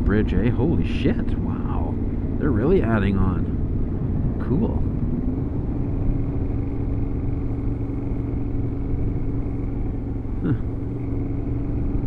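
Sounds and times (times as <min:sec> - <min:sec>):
motorcycle engine cruising: 0:00.0 - 0:12.0
wind and road noise: 0:00.0 - 0:12.0.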